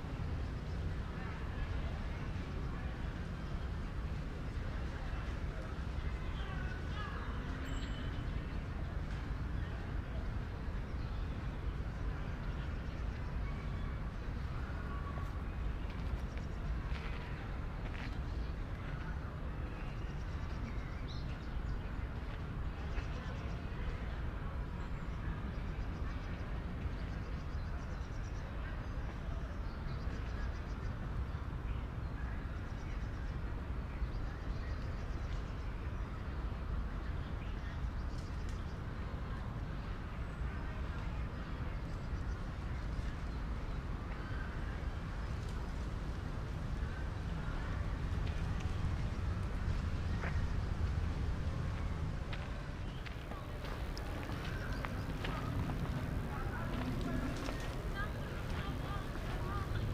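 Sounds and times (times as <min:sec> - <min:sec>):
low traffic rumble: 0:00.0 - 0:59.9.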